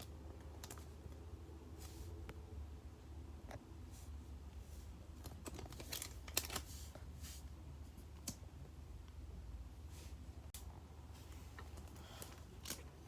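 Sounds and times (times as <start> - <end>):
trading cards rustling and clicking: 5.2 - 7.1.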